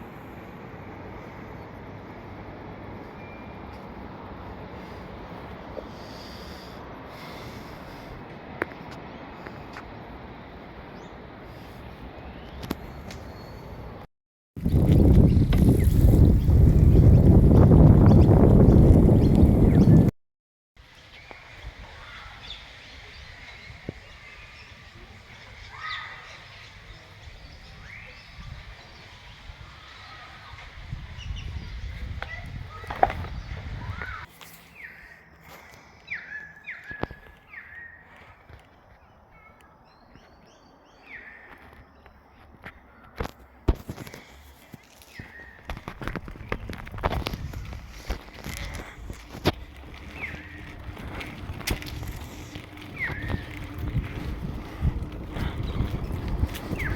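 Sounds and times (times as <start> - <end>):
faint outdoor ambience: 0.0 - 20.1, 20.8 - 56.9
rushing wind: 0.0 - 20.1, 27.2 - 34.3, 43.6 - 56.9
bicycle rolling noise: 14.6 - 20.1, 20.8 - 38.8, 43.2 - 56.9.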